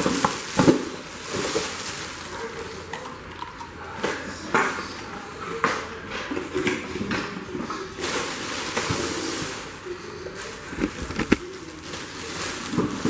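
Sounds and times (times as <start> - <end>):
rustling: 10.4 - 13.0.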